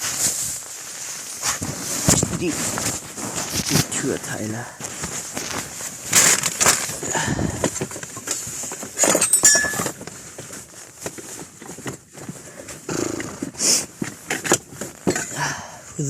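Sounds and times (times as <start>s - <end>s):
objects knocking and clattering: 4.8s - 15.5s
ringing clink: 9.2s - 9.8s.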